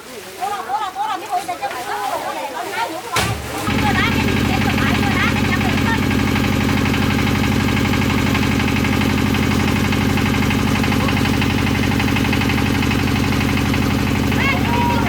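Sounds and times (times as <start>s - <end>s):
engine running with fast pulse: 3.7s - 15.0s.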